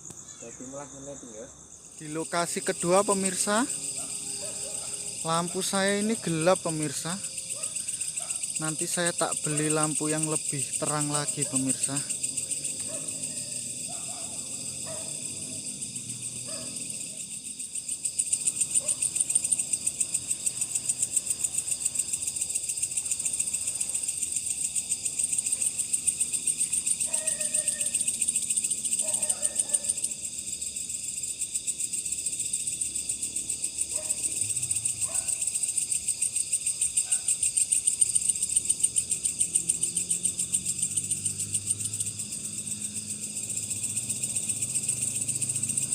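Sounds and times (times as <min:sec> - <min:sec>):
insect chorus trilling: 0:00.0 - 0:45.9.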